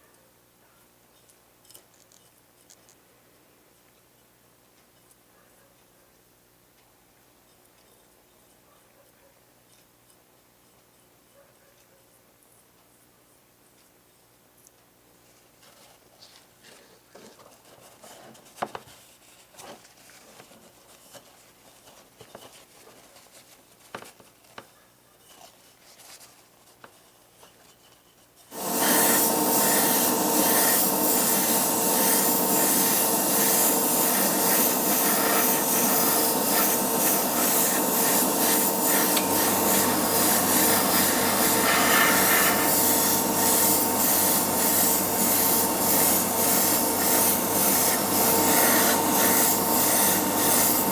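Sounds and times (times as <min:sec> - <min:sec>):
electric tool hissing motor: 0:28.5 - 0:50.9.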